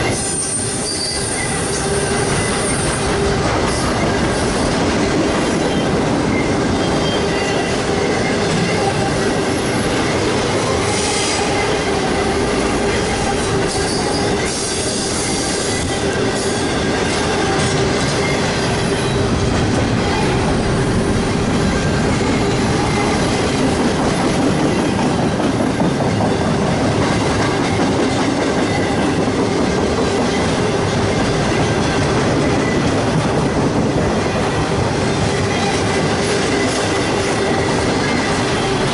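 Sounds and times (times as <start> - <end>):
train wheels rolling on rails: 0.0 - 38.9
wheel squeal: 0.1 - 4.5, 5.6 - 10.1.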